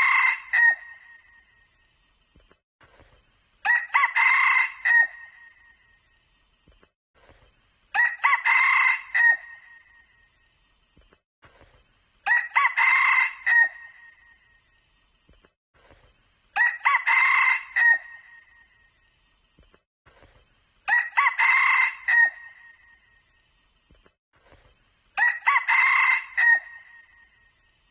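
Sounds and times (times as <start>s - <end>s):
rooster crowing: 0.0s - 1.0s, 3.6s - 5.4s, 8.0s - 9.6s, 12.3s - 13.9s, 16.6s - 18.3s, 20.9s - 22.7s, 25.2s - 27.1s.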